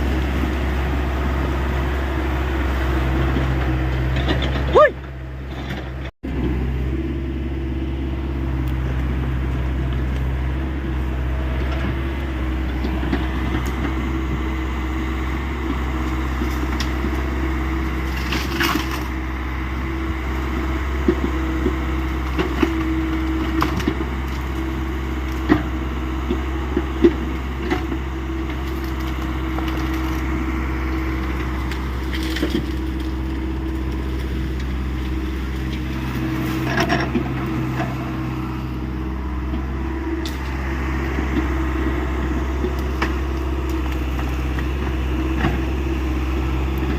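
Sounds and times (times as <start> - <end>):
excavator diesel engine running: 0.0 - 46.9
wood breaking cracks: 28.5 - 30.3, 31.2 - 34.3.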